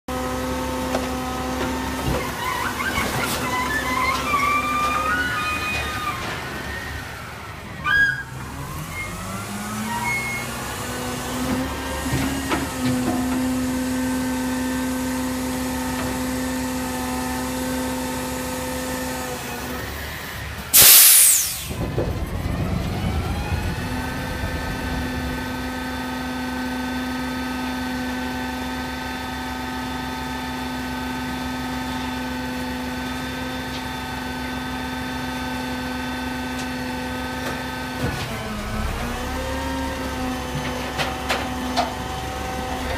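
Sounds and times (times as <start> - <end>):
garbage truck engine revving: 0.2 - 28.6, 34.9 - 42.9
air brake hiss: 20.7 - 21.8.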